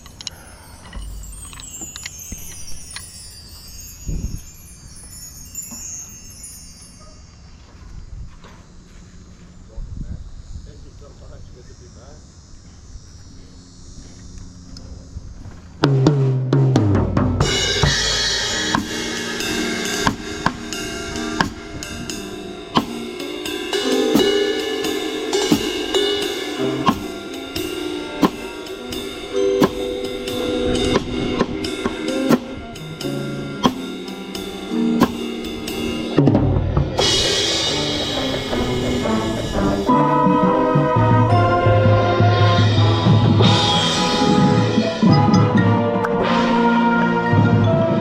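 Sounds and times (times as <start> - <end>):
drum set hits: 15.8 - 48.0
marching band playing: 15.8 - 48.0
cymbal swell: 17.4 - 47.4.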